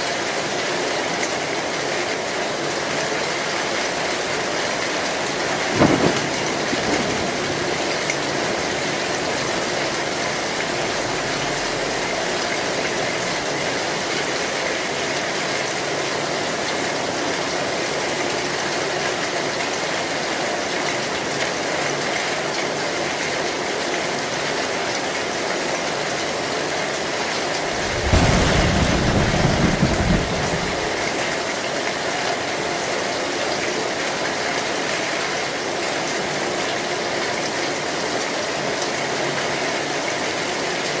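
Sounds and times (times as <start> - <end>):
heavy rain on a metal roof: 0.0 - 41.0
low thunder rumble: 5.0 - 13.9, 27.5 - 31.4.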